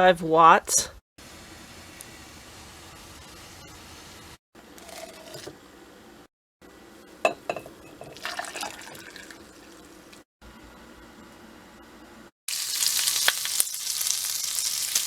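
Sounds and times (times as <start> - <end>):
glass clinking: 7.3 - 9.5
liquid pouring into glass: 8.0 - 10.0.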